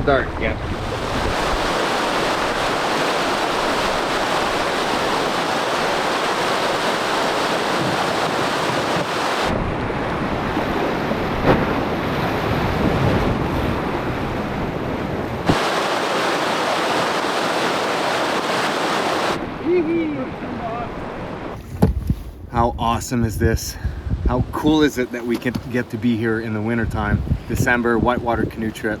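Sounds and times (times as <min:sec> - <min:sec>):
rushing whitewater: 0:00.6 - 0:09.6, 0:15.4 - 0:19.5.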